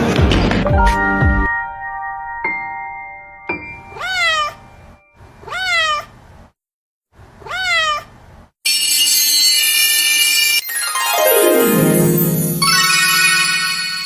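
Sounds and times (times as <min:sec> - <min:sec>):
cat meowing: 0:03.9 - 0:04.6, 0:05.4 - 0:06.1, 0:07.4 - 0:08.1
loud bright music: 0:11.0 - 0:14.0.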